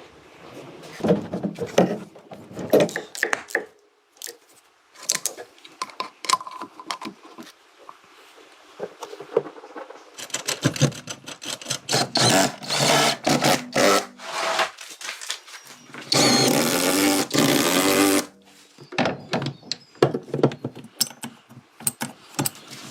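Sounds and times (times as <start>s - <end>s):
small power tool running: 11.9s - 14.6s, 16.1s - 18.3s.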